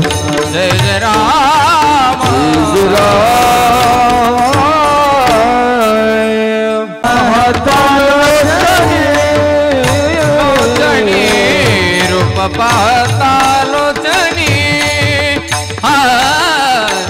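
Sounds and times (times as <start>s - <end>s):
person singing devotional melody: 0.0s - 17.0s
tabla and mridang drums: 0.0s - 17.0s.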